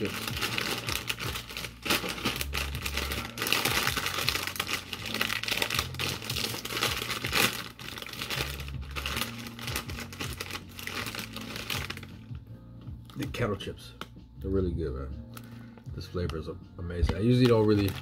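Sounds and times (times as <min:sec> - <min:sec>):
chip bag crinkling: 0:00.0 - 0:12.1, 0:17.2 - 0:18.0.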